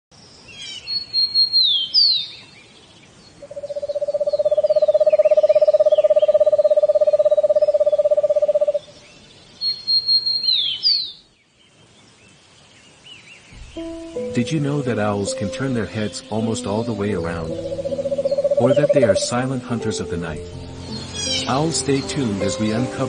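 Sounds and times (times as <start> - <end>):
faint bird chirps: 0.4 - 14.2, 16.9 - 19.3
owl trilling: 3.4 - 8.9, 9.6 - 11.2, 17.4 - 19.3, 21.1 - 21.5.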